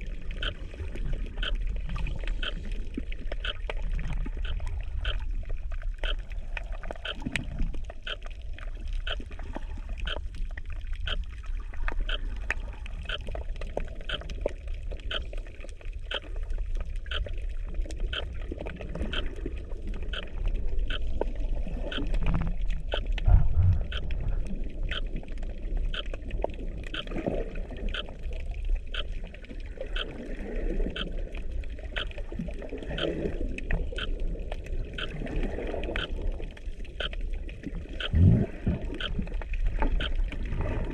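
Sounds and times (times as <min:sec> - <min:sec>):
underwater water movement gurgling: 0:00.0 - 0:40.9
thump: 0:23.3 - 0:23.9.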